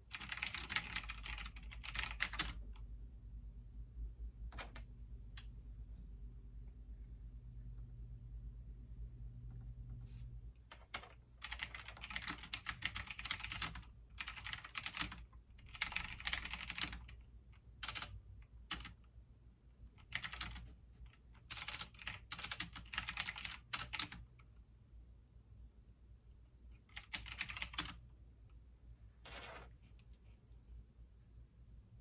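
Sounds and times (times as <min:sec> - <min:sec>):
steady low hum: 0:01.0 - 0:10.7.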